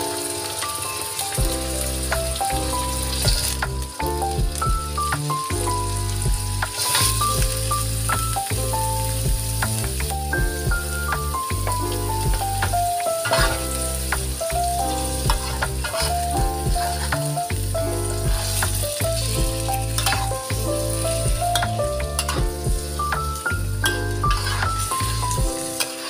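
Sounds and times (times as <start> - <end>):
background music: 0.0 - 26.0
chicken sizzling in a wok: 0.0 - 26.0
metal spatula scraping pan: 13.2 - 13.8, 15.3 - 17.2, 24.0 - 26.0.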